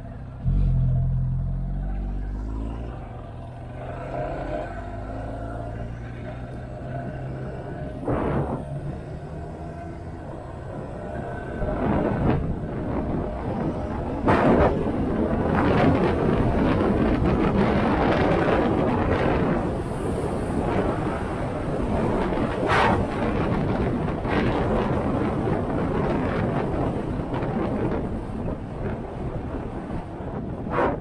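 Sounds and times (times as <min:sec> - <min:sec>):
motorcycle engine: 0:00.0 - 0:25.7
road noise: 0:00.0 - 0:31.0
wind rushing over microphone: 0:02.1 - 0:31.0.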